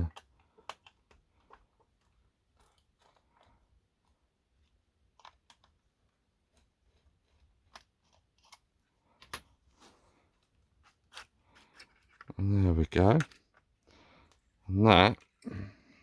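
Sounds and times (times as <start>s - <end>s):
screwdriver and plastic clicks: 0.1s - 3.2s.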